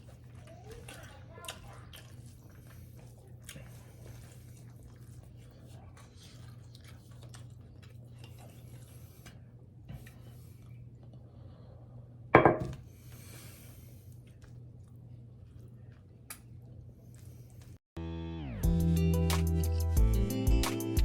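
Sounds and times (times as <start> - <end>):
faint chewing: 0.0 - 11.7, 13.0 - 17.8.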